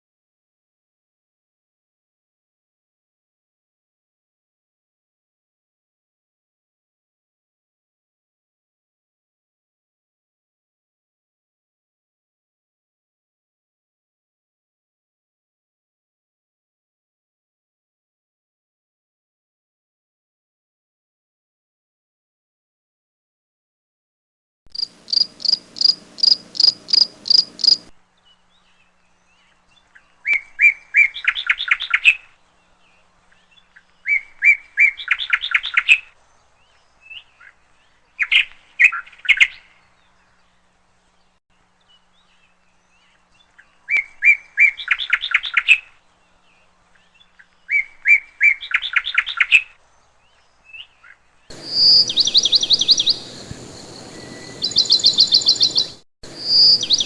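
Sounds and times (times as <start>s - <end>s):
songbird singing: 24.7s - 57.0s.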